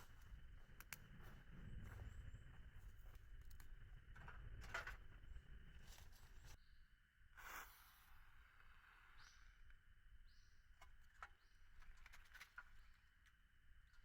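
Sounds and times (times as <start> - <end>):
faint low rumble: 0.0 - 6.8
soft clicks: 0.7 - 1.2.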